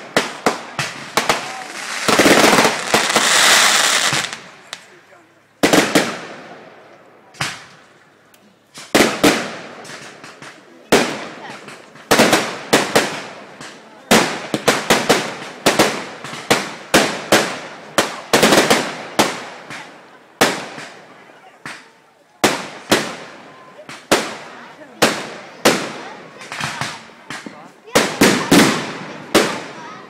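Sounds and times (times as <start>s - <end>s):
fireworks bangs: 0.0s - 4.9s, 5.6s - 7.7s, 8.8s - 30.0s.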